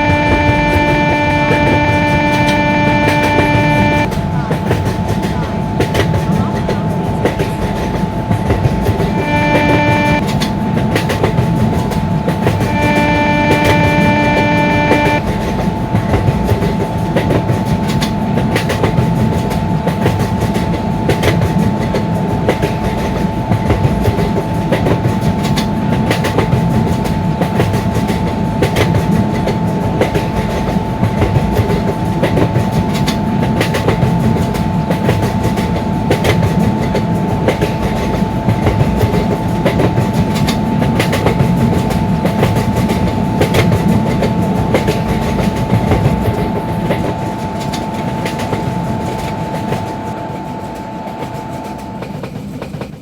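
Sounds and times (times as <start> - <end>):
steady high tone: 0.0 - 4.5, 8.6 - 10.3, 11.6 - 15.4
low train rumble: 0.0 - 53.0
train wheels clattering: 0.0 - 53.0.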